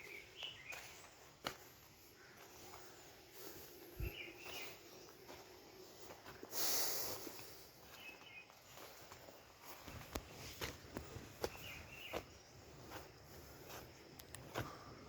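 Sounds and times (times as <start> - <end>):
faint bird chirps: 0.0 - 1.3, 2.0 - 6.1, 7.7 - 10.6, 11.2 - 13.1
soft footsteps: 0.0 - 15.0.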